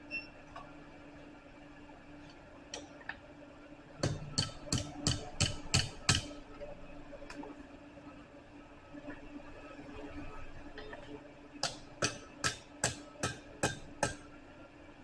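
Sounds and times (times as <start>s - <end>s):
low steady hum: 0.0s - 15.0s
hammer striking steel on anvil: 4.0s - 6.3s, 11.6s - 14.2s.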